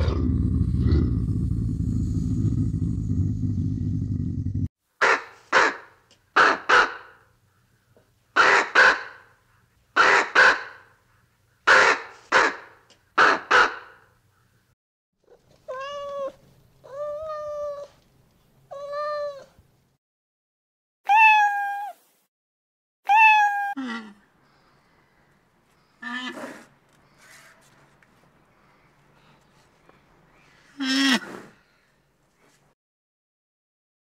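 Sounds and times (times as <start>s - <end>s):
ravens cawing: 11.7s - 14.0s
cat meowing: 15.6s - 17.9s, 18.7s - 19.5s, 21.1s - 22.0s, 23.1s - 23.8s.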